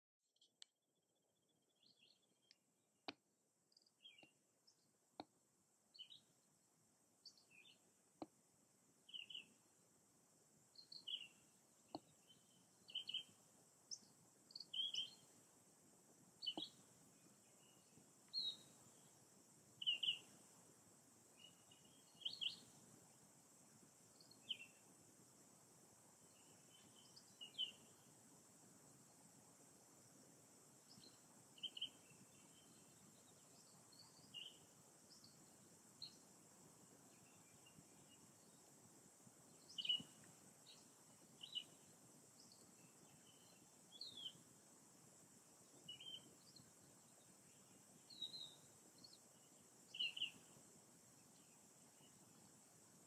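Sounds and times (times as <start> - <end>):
faint high bird chirps: 0.3 - 2.7, 3.6 - 5.3, 5.9 - 6.4, 7.2 - 7.9, 9.0 - 9.6, 10.7 - 15.4, 16.4 - 20.4, 21.3 - 22.8, 24.1 - 24.9, 26.2 - 28.2, 30.8 - 36.3, 37.0 - 38.8, 39.4 - 44.5, 45.6 - 52.6.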